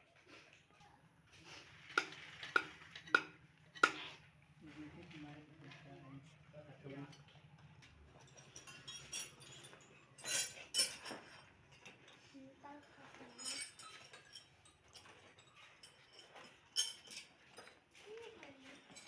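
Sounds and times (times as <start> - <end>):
small metal objects clinking: 8.2 - 12.0, 12.9 - 19.0.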